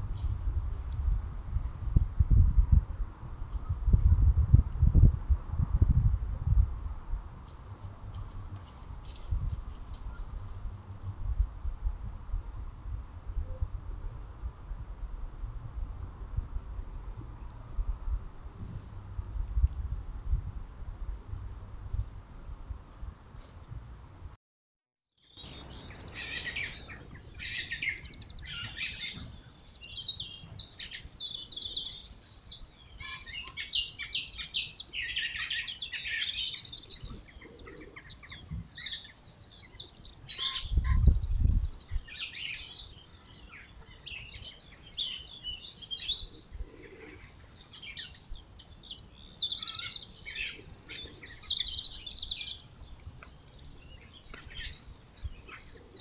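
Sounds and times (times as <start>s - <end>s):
small birds chirping: 25.2s - 56.0s.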